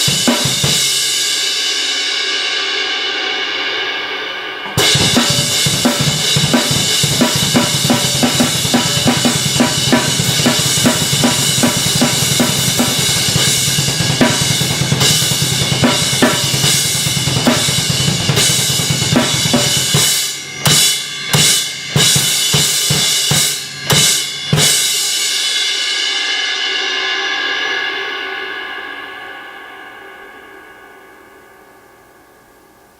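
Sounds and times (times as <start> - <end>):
drum kit groove: 0.0 - 1.9, 4.6 - 26.2
crash cymbal ringing: 23.6 - 32.7.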